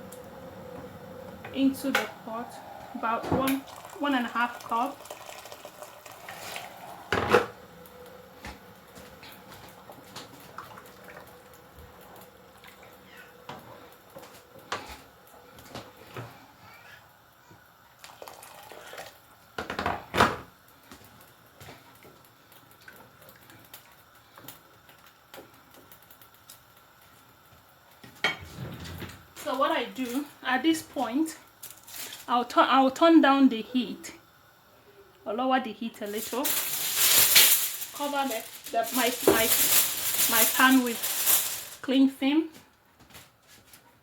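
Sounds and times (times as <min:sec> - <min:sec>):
water pouring into a pot: 0:02.5 - 0:13.3, 0:18.0 - 0:19.4, 0:36.1 - 0:41.8.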